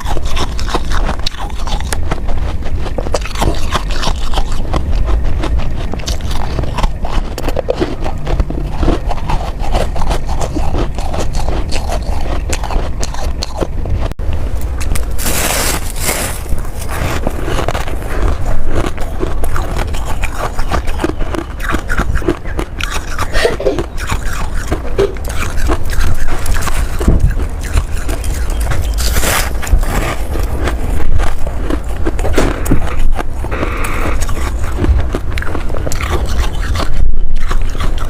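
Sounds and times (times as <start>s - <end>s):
ice being crunched: 14.8s - 19.9s, 28.8s - 35.6s.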